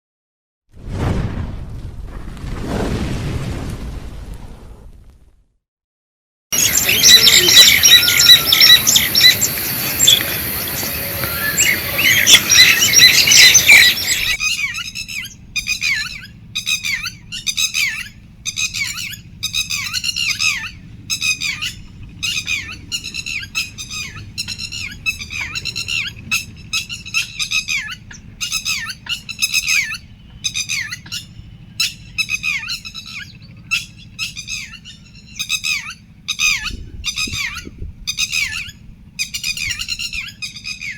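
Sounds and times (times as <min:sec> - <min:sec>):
birds chirping chorus: 0:06.6 - 0:40.9
harsh squawking bird calls: 0:06.6 - 0:40.9
low steady rumble: 0:06.6 - 0:40.9.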